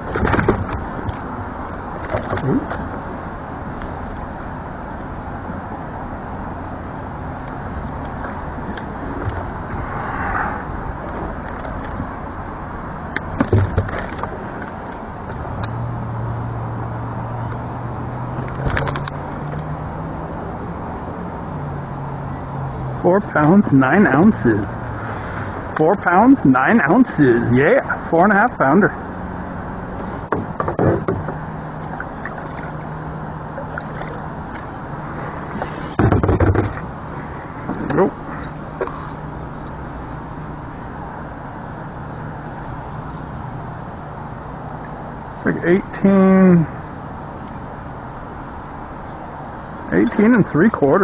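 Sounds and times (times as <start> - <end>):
low steady hum: 0.0 - 51.0
rushing outdoor noise: 0.0 - 51.0
water around a kayak: 0.0 - 51.0
clicks and knocks of gear: 18.4 - 19.7.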